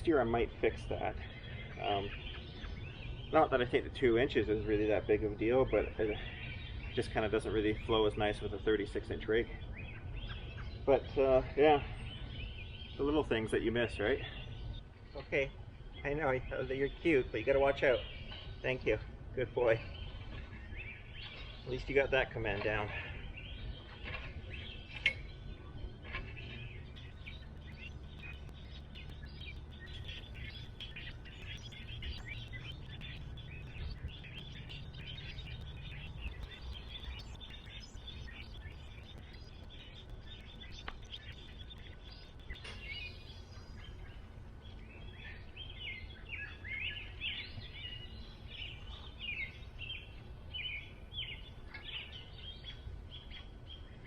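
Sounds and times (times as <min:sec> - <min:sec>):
birds chirping and singing: 0:00.0 - 0:54.0
low background rumble: 0:00.0 - 0:54.0.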